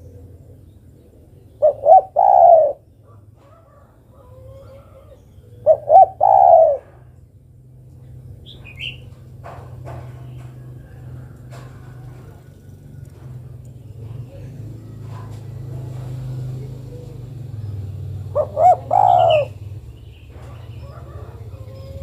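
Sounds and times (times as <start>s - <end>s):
dove cooing: 0.0s - 7.3s, 8.1s - 22.0s
small bird chirp: 8.4s - 9.2s.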